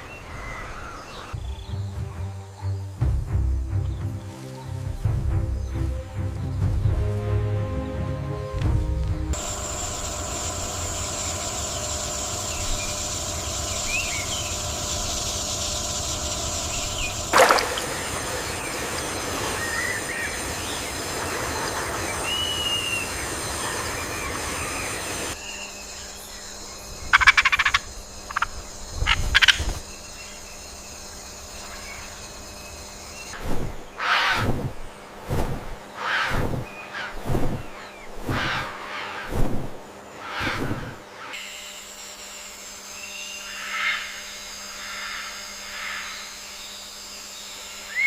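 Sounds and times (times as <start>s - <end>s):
insect or frog chorus: 9.4s - 34.3s, 42.6s - 48.0s.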